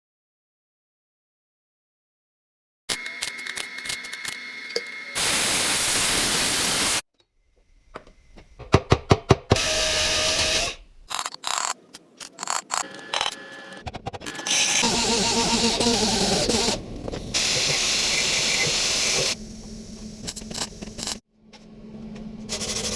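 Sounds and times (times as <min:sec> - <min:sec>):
welding hiss: 0:05.2 - 0:07.0.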